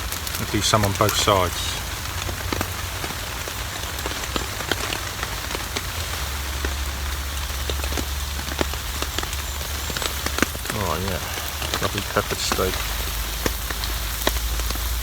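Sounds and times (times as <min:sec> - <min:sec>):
heavy rain on a tarp: 0:00.0 - 0:15.0.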